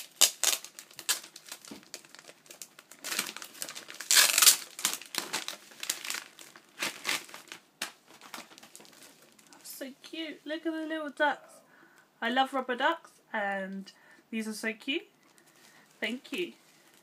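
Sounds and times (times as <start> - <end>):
wrapping paper crinkling and tearing: 0.0 - 9.6.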